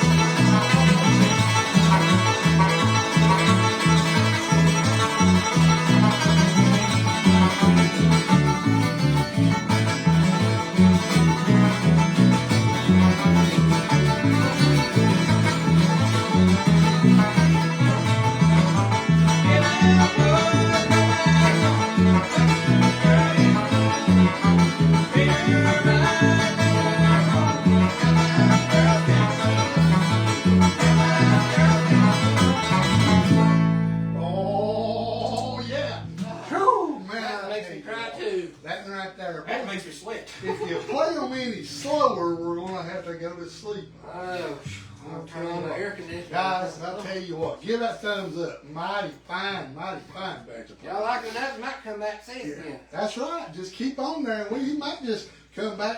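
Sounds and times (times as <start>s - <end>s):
string band backing: 0.0s - 34.4s
bluegrass banjo instrumental: 0.0s - 36.6s.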